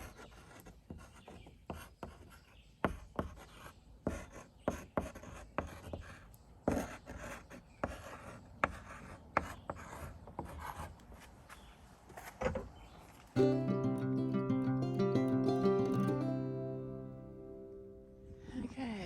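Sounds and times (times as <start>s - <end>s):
pen scratching on paper: 0.0s - 12.3s.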